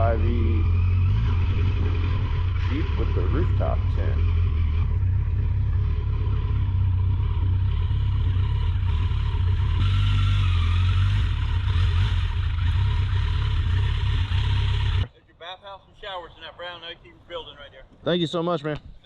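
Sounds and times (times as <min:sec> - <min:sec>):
motorcycle engine rumbling: 0:00.0 - 0:15.2.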